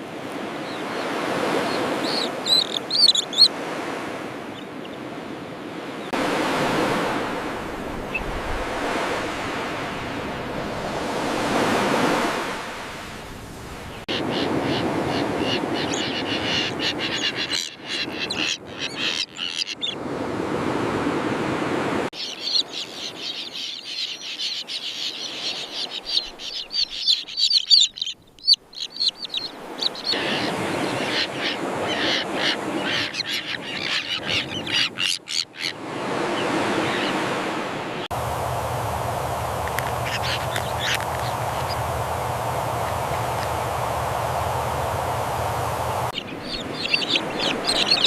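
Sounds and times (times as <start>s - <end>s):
terns calling harshly: 14.1s - 20.0s, 22.2s - 35.8s, 39.6s - 42.1s, 46.1s - 48.0s
steady rushing background: 38.1s - 46.3s.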